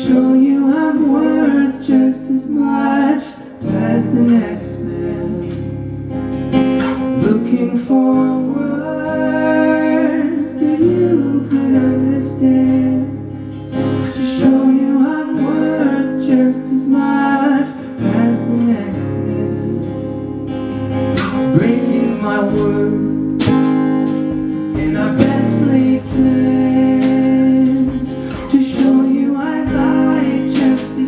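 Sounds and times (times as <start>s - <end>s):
acoustic guitar strumming: 0.0s - 31.0s
person singing: 7.1s - 20.1s, 21.2s - 23.7s, 24.3s - 31.0s.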